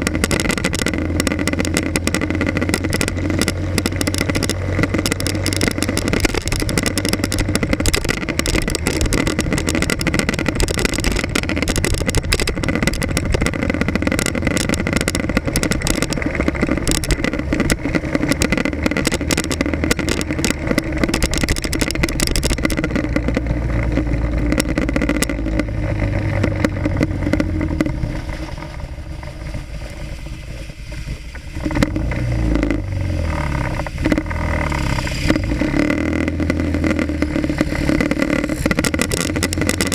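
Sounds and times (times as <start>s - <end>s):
motorcycle engine running: 0.0s - 39.9s
wind crackle on microphone: 0.0s - 39.9s
camera mount rattling: 0.2s - 28.0s.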